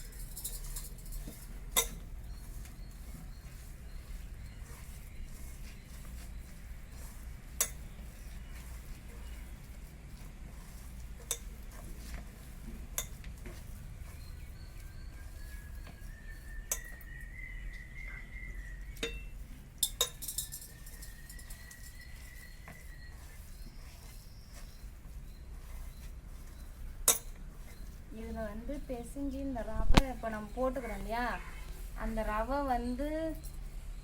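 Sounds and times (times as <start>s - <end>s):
bowl and utensils clinking: 0.0s - 2.1s, 11.2s - 11.5s, 16.7s - 17.0s, 19.0s - 22.0s, 27.0s - 27.4s
batter mixed by hand in bowl: 0.0s - 34.0s
faint thin whistling tone: 14.0s - 19.4s, 20.3s - 26.9s.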